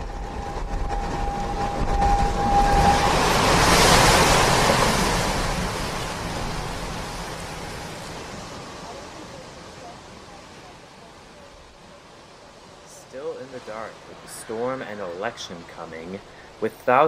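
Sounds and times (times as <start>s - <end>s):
steady high tone: 0.0s - 4.3s
rushing noise: 0.0s - 10.9s.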